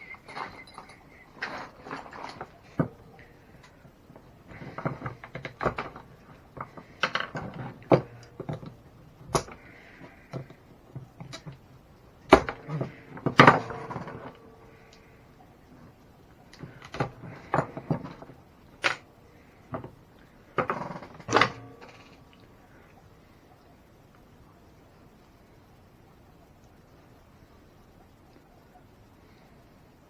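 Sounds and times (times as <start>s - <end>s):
hand tools clicking and clattering: 0.0s - 11.6s, 12.2s - 15.0s.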